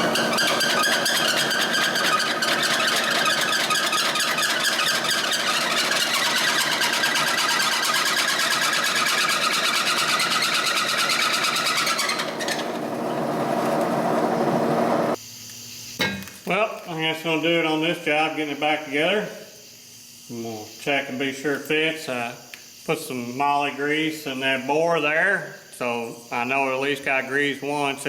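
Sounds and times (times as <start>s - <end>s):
drill bit cutting chatter: 0.0s - 15.2s
milling machine motor running: 0.0s - 15.2s.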